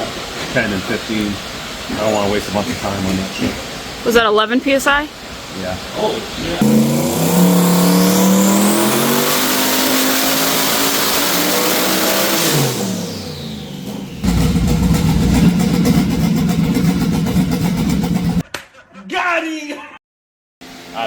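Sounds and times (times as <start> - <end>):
car engine on dyno: 6.6 - 18.4
turbo whine: 6.6 - 18.4
steady low rumble: 14.2 - 18.4.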